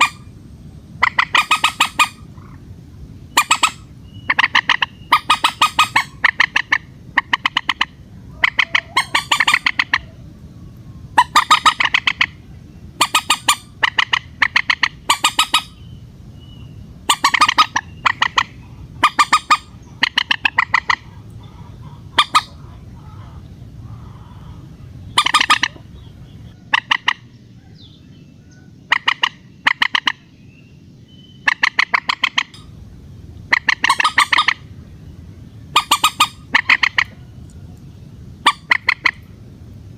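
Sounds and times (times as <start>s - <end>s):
moorhen calling: 0.0s - 39.4s.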